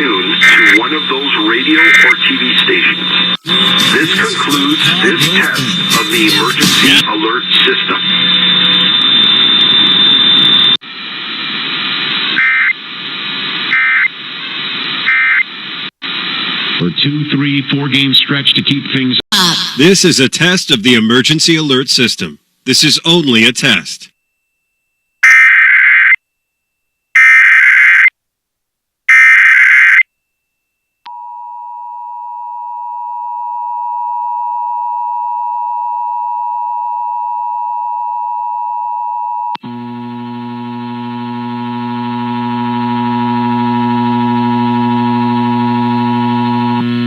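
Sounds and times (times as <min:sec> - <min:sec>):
data tone bursts: 0:00.0 - 0:10.8
low buzzing tone: 0:39.6 - 0:47.0.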